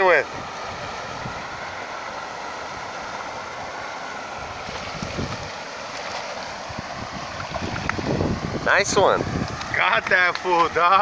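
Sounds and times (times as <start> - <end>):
moving water: 0.0 - 11.0
wind on microphone: 0.3 - 1.8, 4.4 - 10.8.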